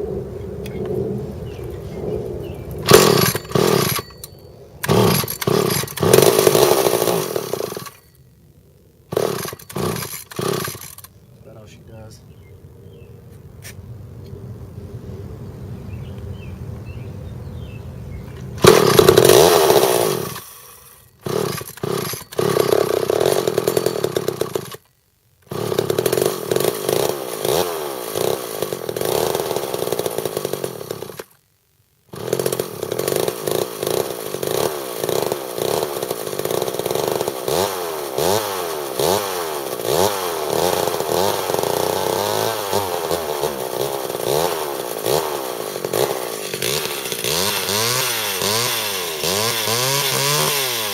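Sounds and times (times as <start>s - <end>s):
chainsaw engine revving: 2.5s - 8.2s, 9.0s - 11.6s, 18.6s - 31.4s, 32.1s - 50.9s.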